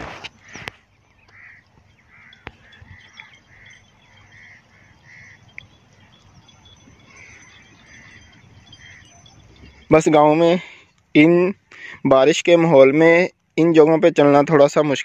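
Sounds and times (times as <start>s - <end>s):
birds calling short notes: 0.0s - 11.1s.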